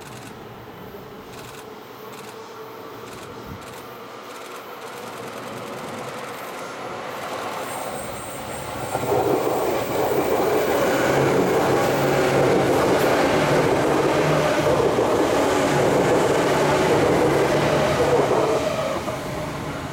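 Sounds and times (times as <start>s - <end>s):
electric train passing close: 4.0s - 19.9s.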